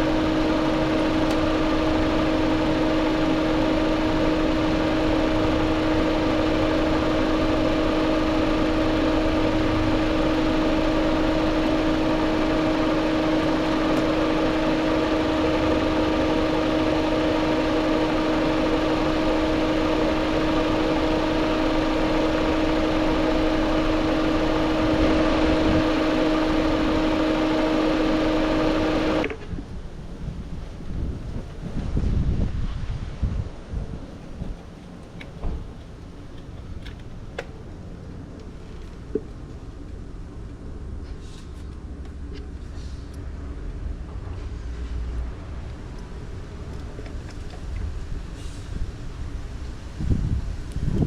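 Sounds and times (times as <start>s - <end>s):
car engine idling: 0.0s - 31.7s
constant whine: 0.0s - 51.0s.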